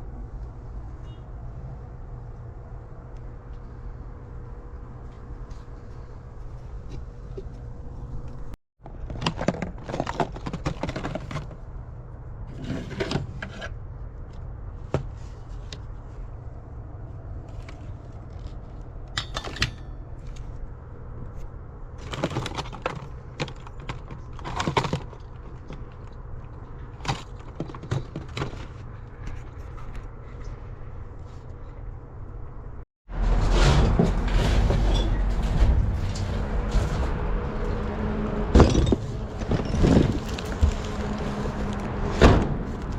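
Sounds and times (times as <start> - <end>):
rustling and clattering objects: 5.0 - 11.8, 17.3 - 31.9, 33.1 - 42.9.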